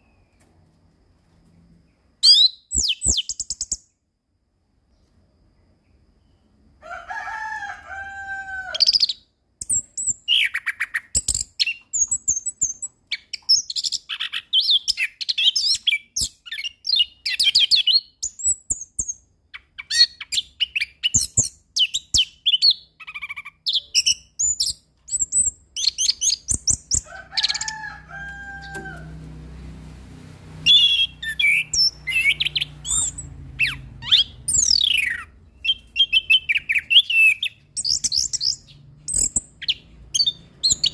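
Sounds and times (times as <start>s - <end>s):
bird singing trills and chirps: 1.9s - 4.0s, 8.7s - 28.8s, 30.6s - 40.9s.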